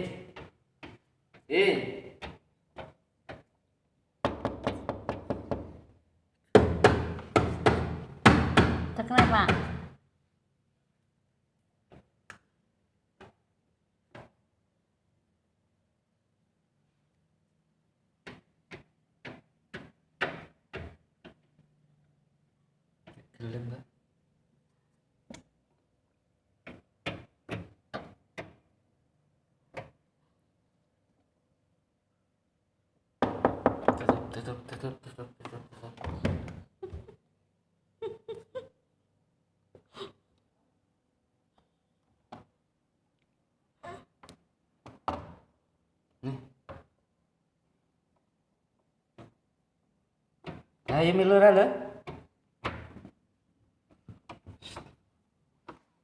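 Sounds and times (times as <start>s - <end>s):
hands knocking on washing machine: 4.2s - 5.8s, 6.6s - 9.9s, 33.2s - 34.4s.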